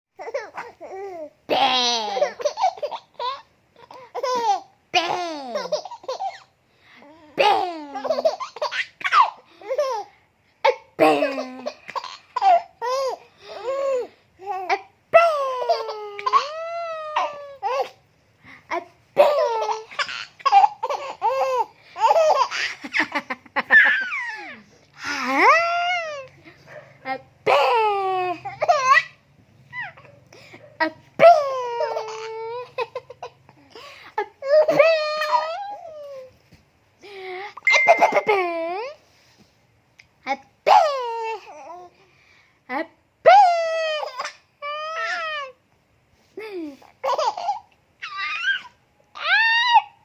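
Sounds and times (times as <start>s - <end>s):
baby laughing: 0.2s - 6.5s, 7.3s - 10.1s, 10.7s - 18.0s, 18.7s - 26.4s, 27.5s - 30.1s, 31.2s - 33.6s, 34.2s - 36.3s, 43.8s - 45.5s, 46.8s - 49.9s.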